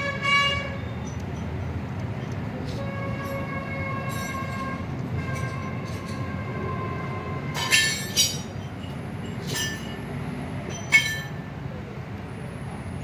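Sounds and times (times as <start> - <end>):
metal engine parts clinking: 4.0 - 6.3, 7.6 - 10.1, 10.7 - 11.5.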